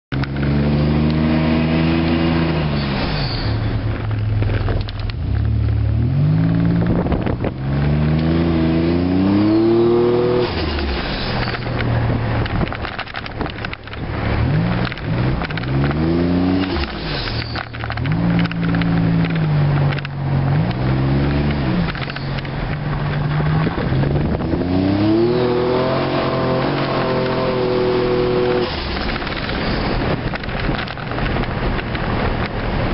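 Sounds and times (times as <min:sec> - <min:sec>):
car engine revving hard: 0:05.8 - 0:11.0, 0:23.4 - 0:29.3.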